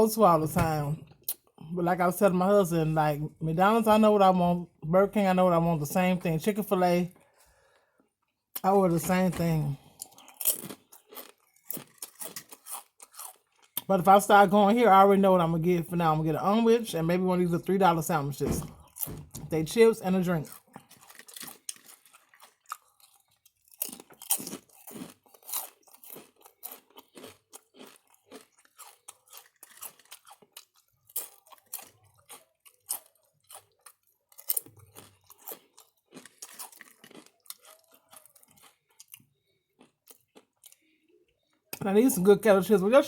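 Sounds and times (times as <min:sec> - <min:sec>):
person chewing crunchy chips: 0:08.3 - 0:13.9, 0:19.8 - 0:41.4.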